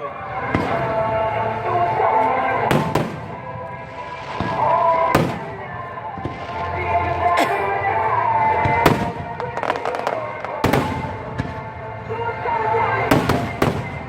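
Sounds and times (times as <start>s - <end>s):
music playing: 0.0s - 14.0s
fireworks bangs: 2.6s - 12.0s, 12.9s - 14.0s.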